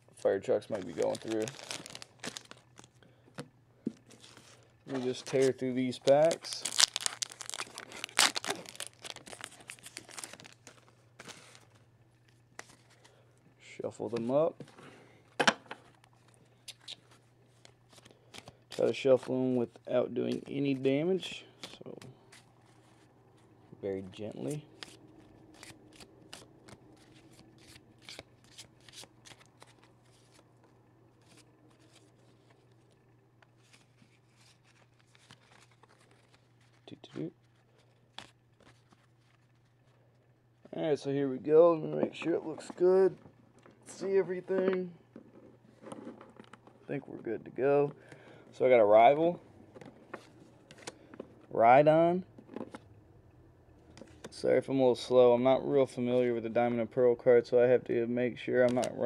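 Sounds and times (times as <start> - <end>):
cards being shuffled by hand: 0.1 - 13.2, 15.8 - 23.6, 24.3 - 40.0, 41.9 - 48.0, 48.9 - 51.5
wrappers tearing and crinkling: 0.7 - 3.0, 4.1 - 11.8, 24.5 - 30.4, 33.6 - 39.9.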